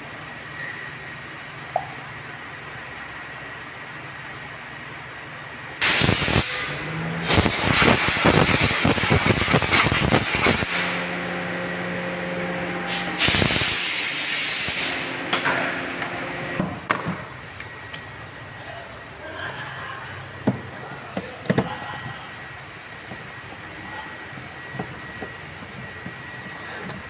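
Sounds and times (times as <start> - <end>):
steady machine hum: 0.0 - 27.0
pressurised gas hissing: 5.8 - 11.0, 12.8 - 15.1.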